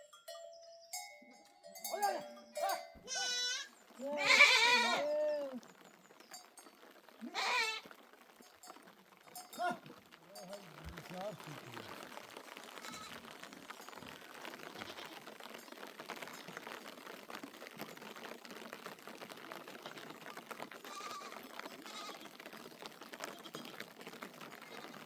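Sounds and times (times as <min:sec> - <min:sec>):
rain pattering: 0:00.9 - 0:25.0
sheep bleating faintly: 0:03.0 - 0:05.6.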